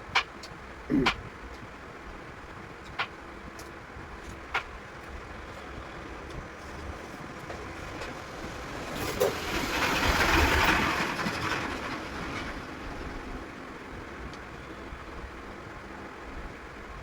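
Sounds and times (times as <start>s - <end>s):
vehicle passing by: 7.9s - 13.2s.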